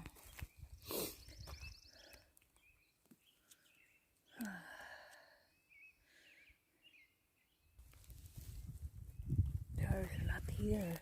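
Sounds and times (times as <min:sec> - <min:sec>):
faint bird chirps: 0:00.2 - 0:07.8
person sighing: 0:04.3 - 0:05.4.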